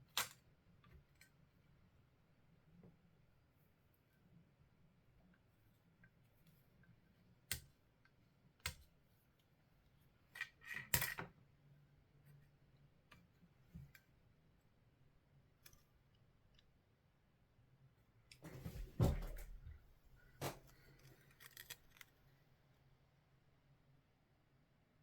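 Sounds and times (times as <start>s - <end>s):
small hard parts clicking: 20.9s - 22.1s.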